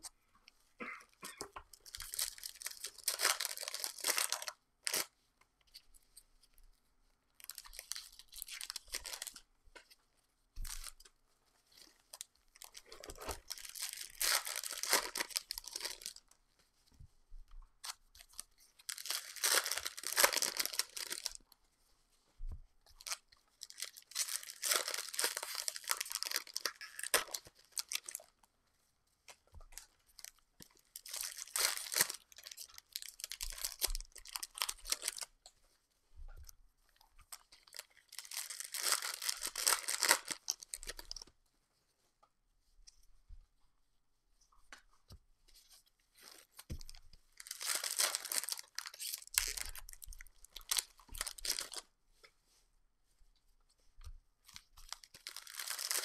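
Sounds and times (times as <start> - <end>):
wrappers tearing and crinkling: 1.7 - 5.1, 7.4 - 9.4, 12.2 - 16.2, 17.8 - 21.4, 23.0 - 28.3, 30.2 - 35.3, 37.3 - 41.3, 46.2 - 51.9, 54.5 - 56.0.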